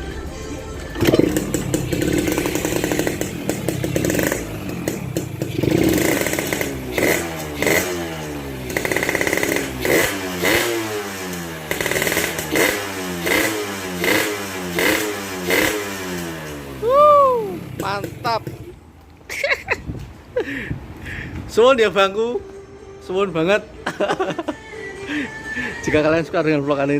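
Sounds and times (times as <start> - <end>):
motorcycle engine revving: 1.0 - 18.8.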